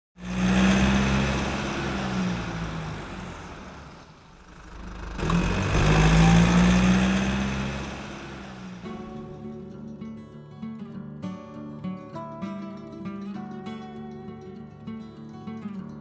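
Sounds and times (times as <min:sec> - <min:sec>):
vehicle engine running: 0:00.2 - 0:09.6.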